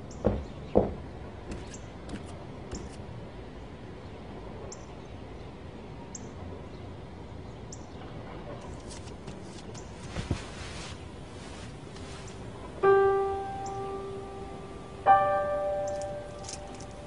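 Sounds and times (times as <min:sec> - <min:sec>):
steady background ambience: 0:00.0 - 0:17.0
faint high bird chirp: 0:13.2 - 0:14.8, 0:15.4 - 0:17.0.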